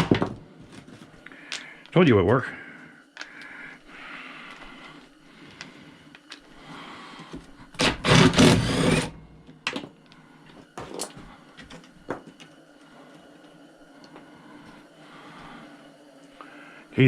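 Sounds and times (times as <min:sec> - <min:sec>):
steady low hum: 0:00.0 - 0:17.0
power tool whirring: 0:07.7 - 0:09.4.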